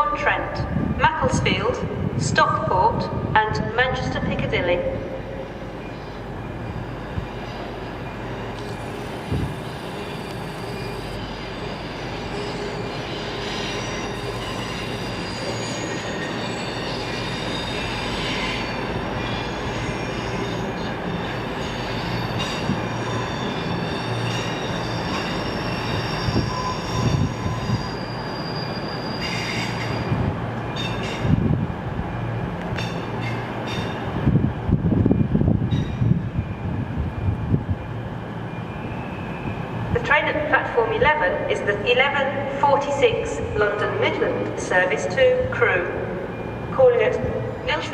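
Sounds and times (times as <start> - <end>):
train running on rails: 0.0 - 47.9
wheel squeal: 8.9 - 30.1.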